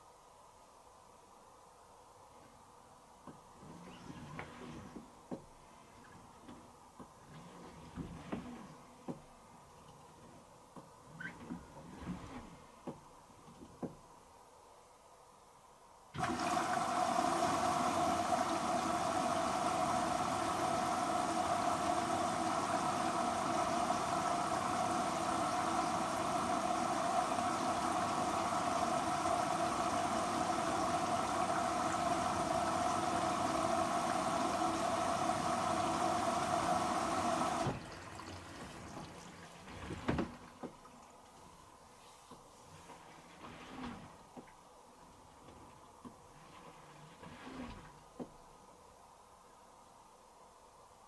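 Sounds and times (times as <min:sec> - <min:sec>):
water rushing into washing machine: 0:16.2 - 0:41.8, 0:46.2 - 0:48.3.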